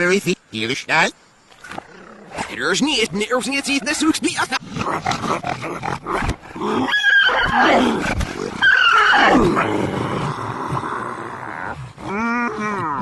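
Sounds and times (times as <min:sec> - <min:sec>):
backwards cartoon roar-like sounds: 0:06.6 - 0:13.0.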